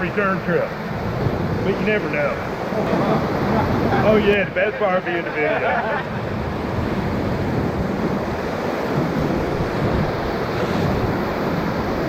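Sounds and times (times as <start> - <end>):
whitewater rapids rushing: 0.0 - 12.0
wind buffeting microphone: 0.0 - 12.0.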